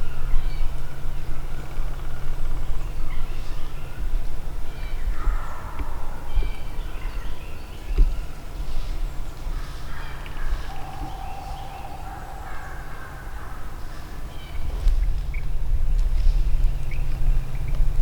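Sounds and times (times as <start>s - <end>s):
birds calling: 9.5s - 15.6s
wild turkeys gobbling: 10.6s - 14.2s
steady low rumble: 10.6s - 18.0s.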